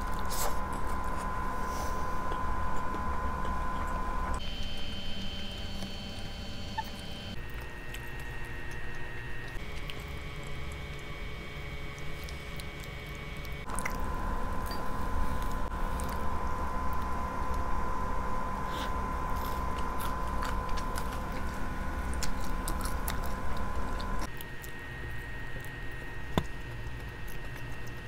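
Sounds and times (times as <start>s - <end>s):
chewing with wet squishing: 0.0s - 1.5s, 5.6s - 17.7s, 18.5s - 28.0s.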